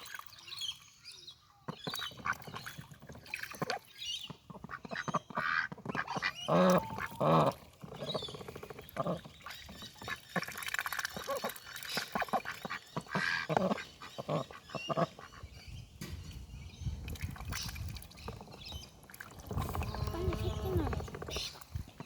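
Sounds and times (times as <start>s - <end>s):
duck dabbling bill in water: 1.7s - 15.5s.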